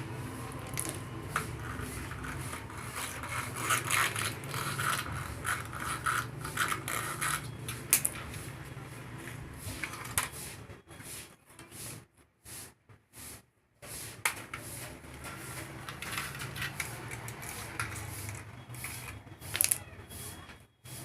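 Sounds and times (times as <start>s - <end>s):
mechanical clicks and scraping: 0.4s - 10.6s, 14.1s - 20.6s.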